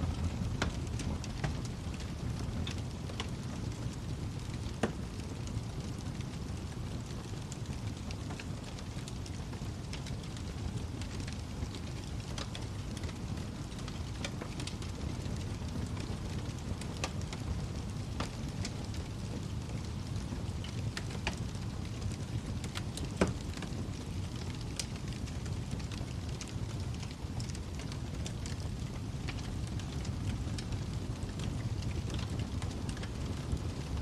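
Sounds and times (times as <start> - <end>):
wood fire crackling: 0.0 - 34.0
fire pops: 7.0 - 33.9.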